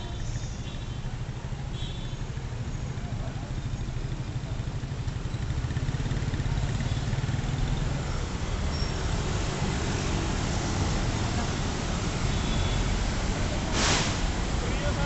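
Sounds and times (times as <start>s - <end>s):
street traffic: 0.0s - 15.0s
motorcycle engine pulling away: 4.2s - 11.3s.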